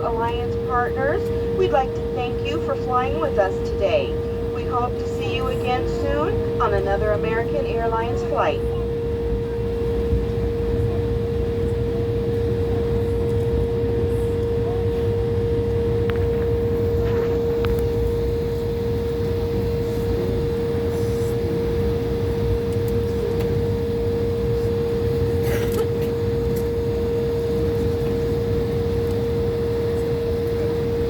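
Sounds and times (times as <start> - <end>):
airliner cabin rumble: 0.0 - 31.0
constant hum tone: 0.0 - 31.0.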